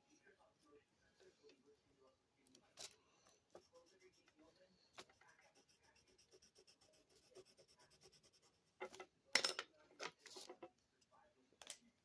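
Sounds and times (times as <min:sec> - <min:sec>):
pencil scratching on paper: 0:03.5 - 0:09.0.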